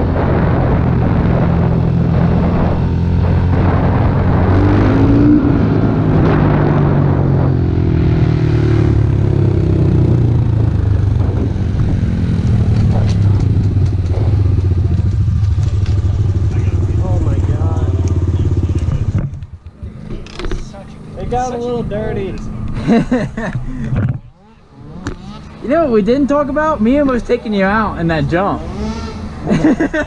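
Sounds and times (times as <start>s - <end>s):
motorbike engine under throttle: 0.0s - 21.2s, 28.6s - 30.0s.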